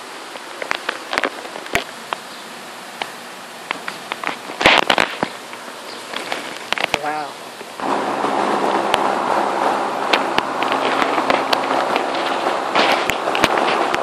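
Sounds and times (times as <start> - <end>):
heavy rain falling: 0.0 - 14.0
sharp pops and clicks: 0.3 - 2.2, 3.0 - 7.2, 10.1 - 14.0.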